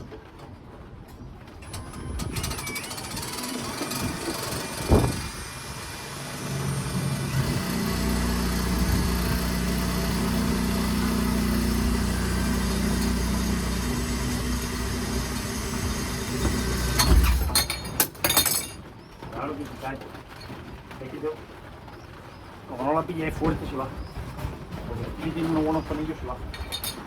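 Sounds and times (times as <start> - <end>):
motor humming: 1.6 - 17.6.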